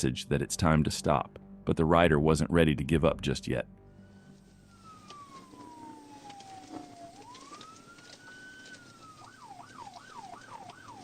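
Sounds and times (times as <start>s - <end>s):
police siren wail and yelp: 4.6s - 11.0s.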